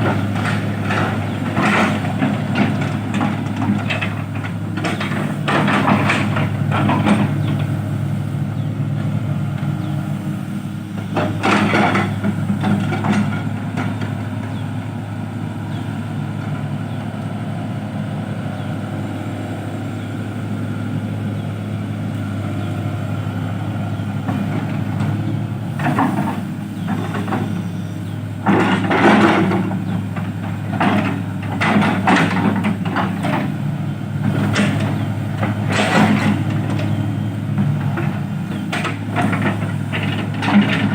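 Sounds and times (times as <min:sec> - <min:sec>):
diesel engine humming: 0:00.0 - 0:40.9.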